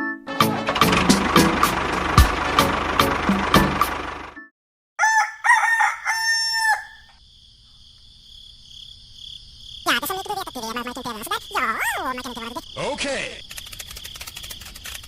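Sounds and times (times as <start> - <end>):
rooster crowing: 5.0 - 7.2
crickets chirring: 5.1 - 15.0.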